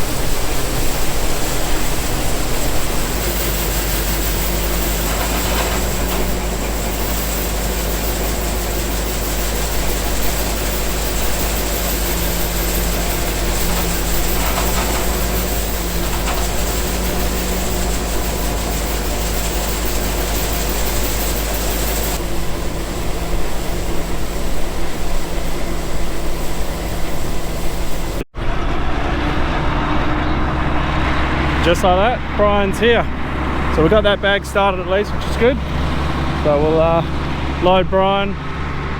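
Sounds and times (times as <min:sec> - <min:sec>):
heavy farm machinery running: 0:00.0 - 0:38.9.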